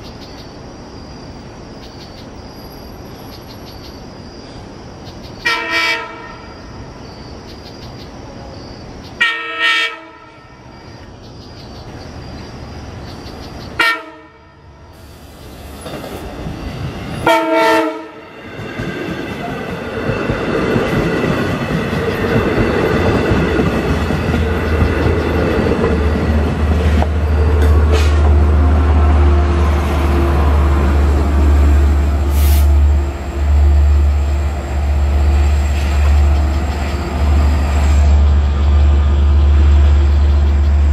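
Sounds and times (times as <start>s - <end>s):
train engine drone: 0.0s - 40.9s
train horn blasts: 5.5s - 6.6s, 9.2s - 10.8s, 13.8s - 14.8s, 17.2s - 18.3s
wheel and rail noise: 14.4s - 40.9s.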